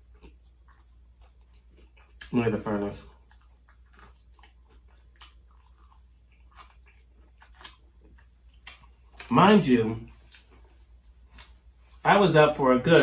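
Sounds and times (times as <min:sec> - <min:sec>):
faint chewing: 0:00.0 - 0:12.1
soft crunches: 0:10.1 - 0:12.1.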